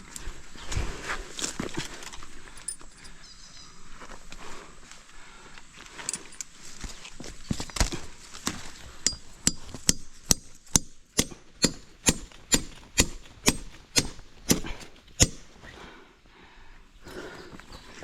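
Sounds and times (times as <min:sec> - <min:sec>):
hand tool striking: 0:09.0 - 0:15.5.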